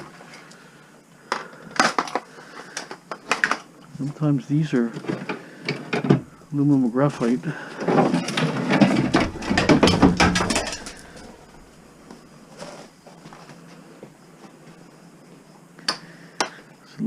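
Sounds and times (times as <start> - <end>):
light items rattling and clicking: 7.8 - 11.7.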